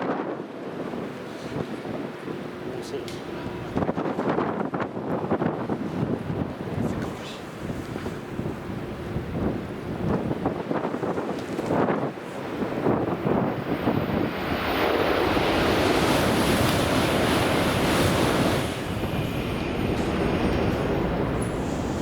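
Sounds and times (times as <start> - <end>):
train rushing roar: 15.1 - 22.0.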